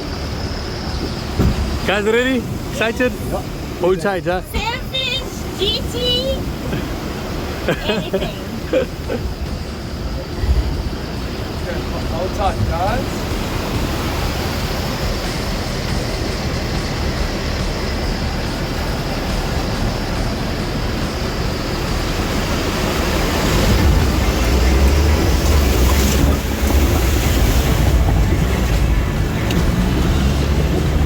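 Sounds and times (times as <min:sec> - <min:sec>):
boat engine rumble: 0:00.0 - 0:31.0
rushing water: 0:00.0 - 0:31.0
wind noise: 0:08.9 - 0:31.0.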